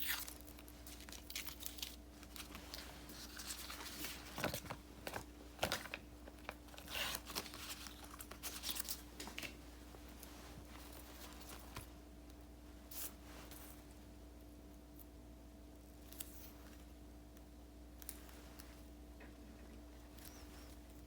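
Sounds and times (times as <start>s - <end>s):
paper stickers peeling and rustling: 0.0s - 11.9s.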